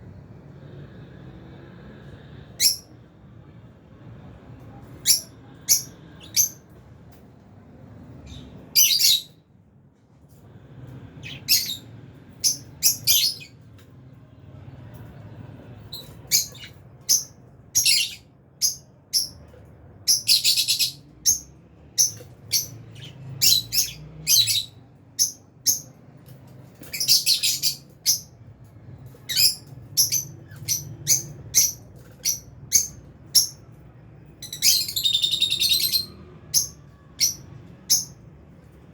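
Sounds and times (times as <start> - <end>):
lovebirds chirping: 8.2 - 9.4, 11.2 - 13.6, 15.9 - 26.0, 26.7 - 28.4, 29.1 - 33.7, 34.3 - 38.2.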